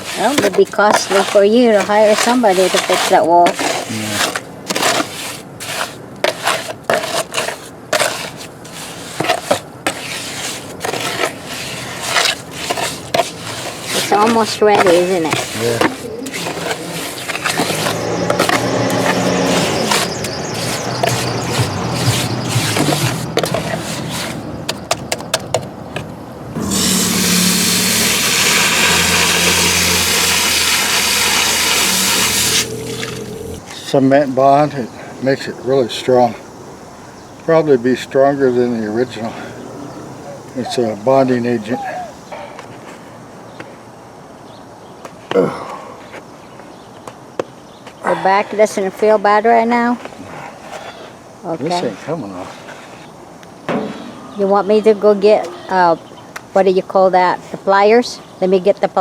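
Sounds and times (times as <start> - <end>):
tool scraping through wet concrete: 0.0 - 24.9, 26.6 - 33.6.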